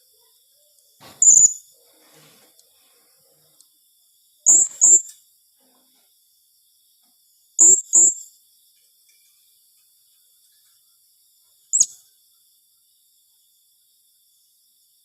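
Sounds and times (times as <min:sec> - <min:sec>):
parrot sharp high calls: 0:04.5 - 0:05.1, 0:11.8 - 0:12.0.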